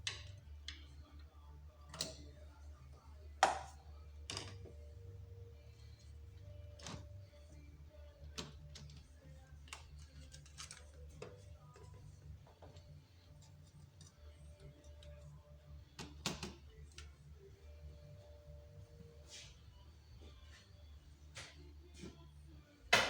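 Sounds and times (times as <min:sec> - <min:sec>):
low steady hum: 0:00.0 - 0:23.0
hand tools clicking and tapping: 0:03.4 - 0:04.6, 0:08.3 - 0:15.2.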